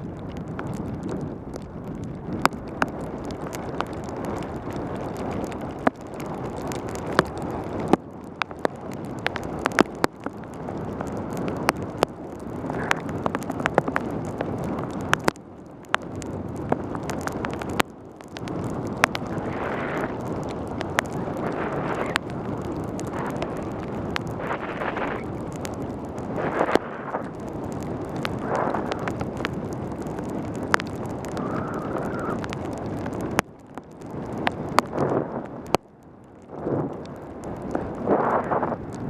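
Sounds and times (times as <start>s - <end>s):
wind rushing over microphone: 0.0s - 39.0s
wet tyres hissing on road: 22.8s - 25.3s.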